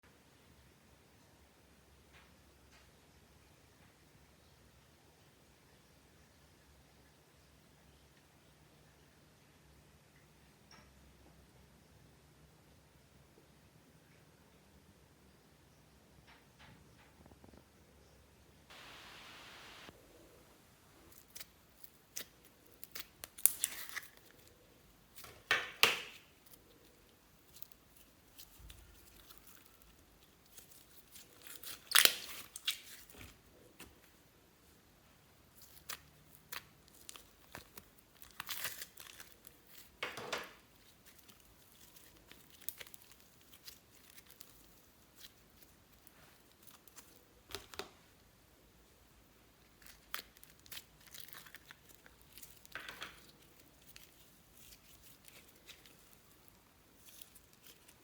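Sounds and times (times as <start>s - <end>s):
crinkling and ripping: 21.0s - 33.9s, 35.5s - 48.0s, 49.6s - 58.0s
hands handling slime: 21.0s - 34.2s, 35.2s - 48.3s, 49.5s - 58.0s.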